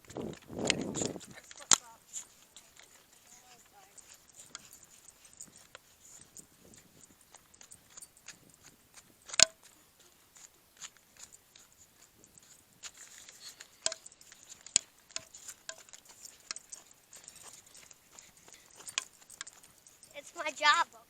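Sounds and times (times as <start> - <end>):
footsteps on paved road: 0.0 - 21.0
sharp clicks and taps: 9.2 - 9.8, 10.8 - 20.6.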